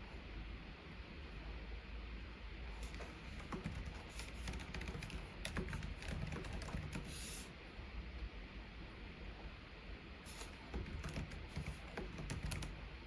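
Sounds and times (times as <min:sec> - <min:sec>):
typing on computer keyboard: 0:02.8 - 0:07.4, 0:10.3 - 0:13.0.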